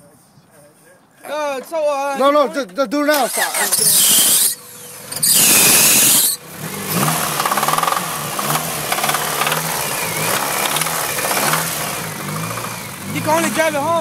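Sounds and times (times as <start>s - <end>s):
engine cranking: 3.1s - 14.0s
engine running unevenly: 4.6s - 14.0s.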